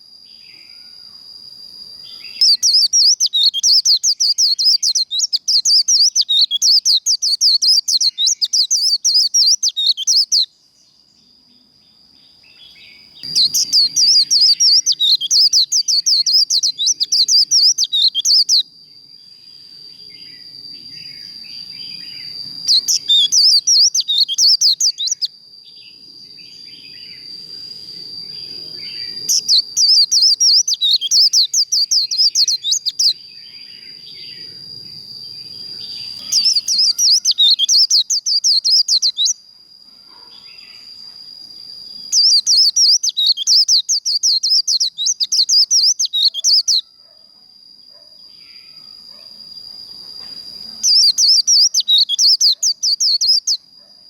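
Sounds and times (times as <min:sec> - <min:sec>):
bird chattering song: 0:02.1 - 0:10.5, 0:12.6 - 0:18.6, 0:21.1 - 0:25.3, 0:28.4 - 0:34.5, 0:35.5 - 0:39.4, 0:42.1 - 0:46.8, 0:50.2 - 0:53.6.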